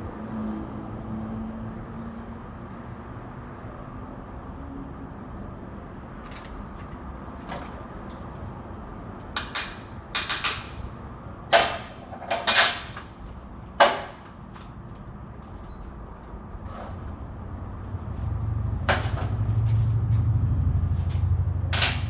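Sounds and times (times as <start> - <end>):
metal tools clanking: 6.2 - 16.0, 18.9 - 20.3, 21.0 - 22.0.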